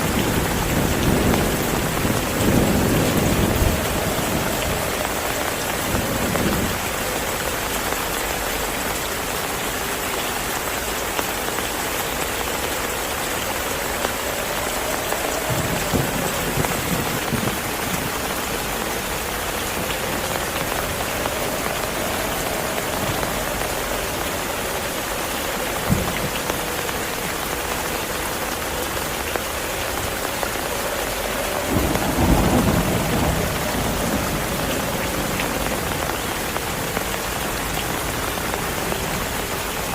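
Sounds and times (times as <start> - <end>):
low rumbles of thunder: 0.0 - 7.0, 14.4 - 24.6, 31.2 - 37.0
heavy rain: 0.0 - 39.9.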